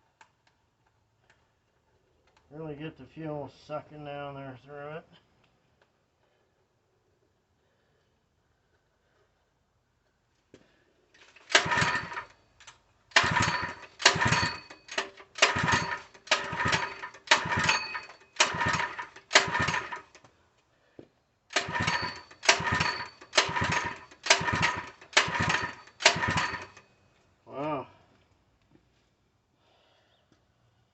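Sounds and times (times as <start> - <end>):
recoil starter pulls: 11.1 - 20.3, 21.5 - 26.9
small engine cranking: 11.2 - 20.3, 21.5 - 26.9.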